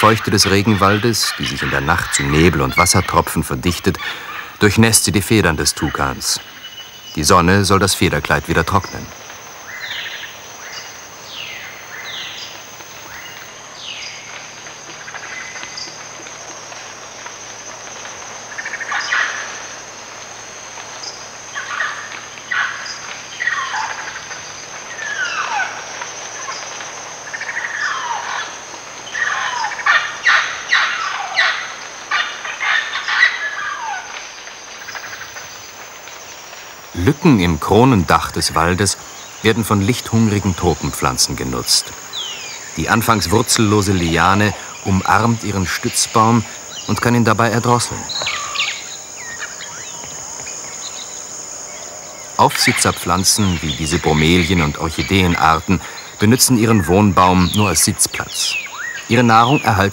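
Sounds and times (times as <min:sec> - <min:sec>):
high insect buzz: 0:00.0 - 0:59.9
birds whistling downward notes: 0:34.8 - 0:59.9.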